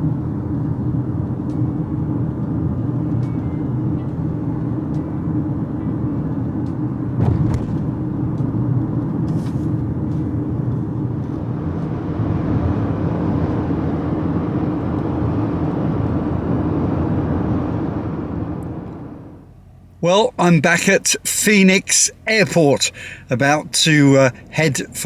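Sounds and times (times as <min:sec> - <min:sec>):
vehicle engine and road drone: 0:00.0 - 0:25.0
brief knock: 0:07.2 - 0:07.9.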